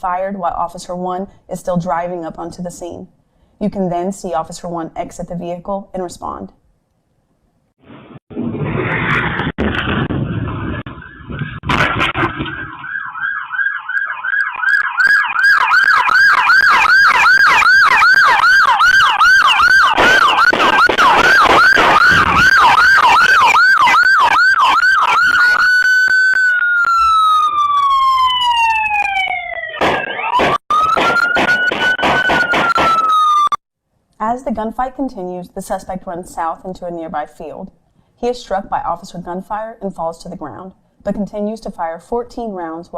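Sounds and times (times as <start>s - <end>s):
gunfire cracks: 7.9s - 12.8s, 29.8s - 33.2s
police siren yelp and wail: 10.4s - 33.6s.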